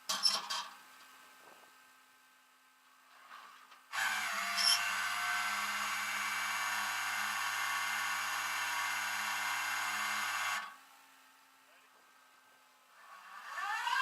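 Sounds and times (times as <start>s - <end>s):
motor running steadily: 3.9s - 10.8s.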